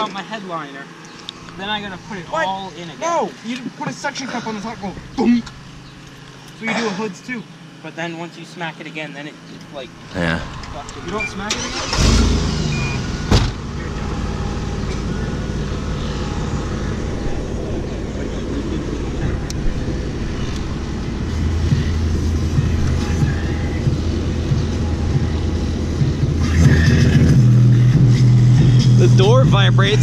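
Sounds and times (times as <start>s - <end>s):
deep bass from car stereo: 9.8s - 30.0s.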